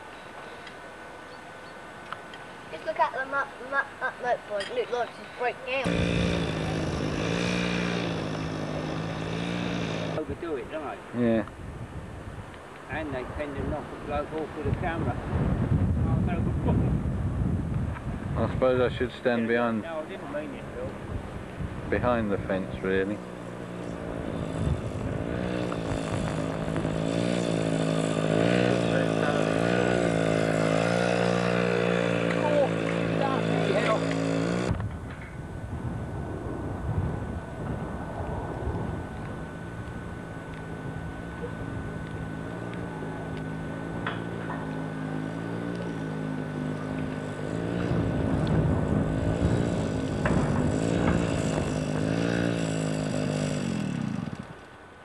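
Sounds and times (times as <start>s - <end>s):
motorcycle engine revving: 5.8s - 10.3s, 21.7s - 35.0s, 38.8s - 54.6s.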